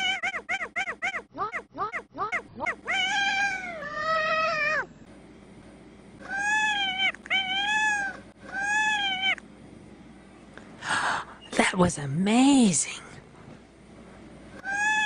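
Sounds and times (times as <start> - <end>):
cat meowing: 2.2 - 4.9, 6.2 - 9.4, 14.6 - 15.0.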